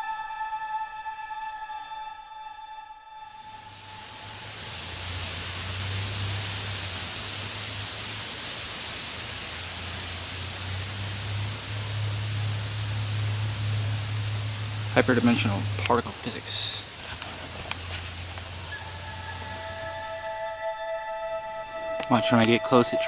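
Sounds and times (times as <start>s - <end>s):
low hum: 0.0s - 23.0s
steady hiss: 3.4s - 20.8s.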